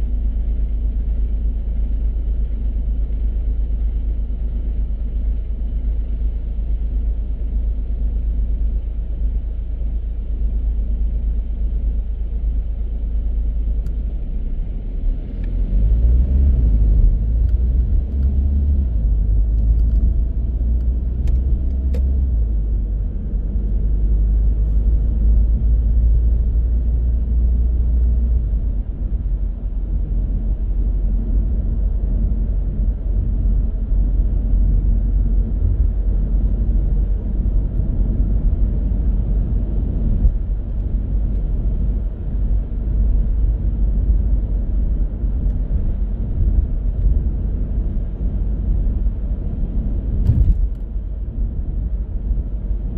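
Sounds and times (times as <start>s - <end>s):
car engine and road noise: 0.0s - 52.9s.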